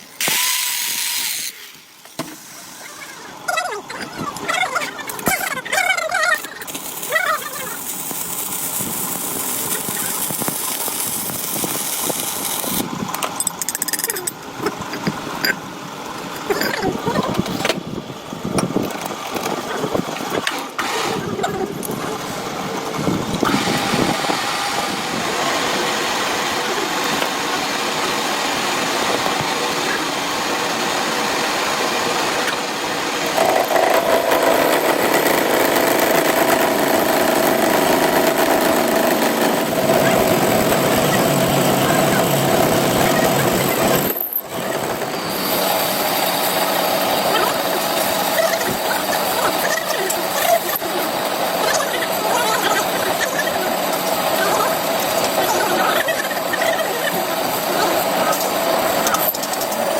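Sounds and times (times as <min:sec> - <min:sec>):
metalworking machinery running: 0:00.0 - 0:59.9.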